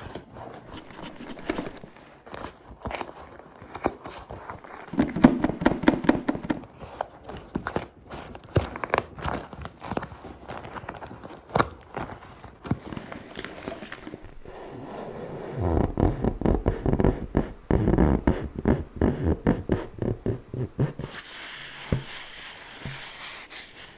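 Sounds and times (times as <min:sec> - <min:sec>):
fingers tapping and scratching: 0:00.6 - 0:02.0, 0:04.6 - 0:06.9, 0:13.0 - 0:23.9.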